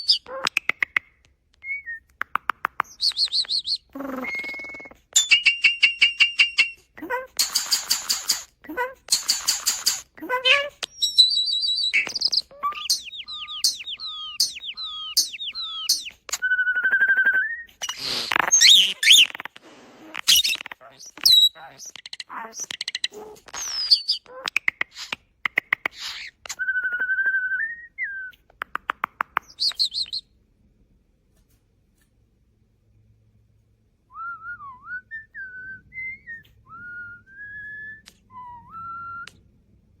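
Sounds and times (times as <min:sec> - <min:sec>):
starling whistling a tune: 0:01.6 - 0:02.0, 0:02.9 - 0:05.0, 0:10.9 - 0:19.3, 0:26.6 - 0:28.4, 0:34.1 - 0:39.4
starling singing: 0:02.8 - 0:05.4, 0:06.3 - 0:19.5.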